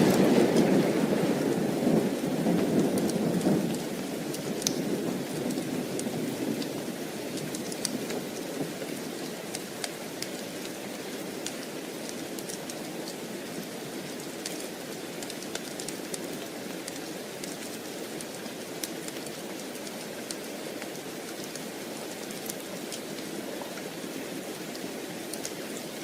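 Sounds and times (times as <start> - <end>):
thunder rumble: 0.0 - 6.6
heavy rain falling: 0.0 - 26.0.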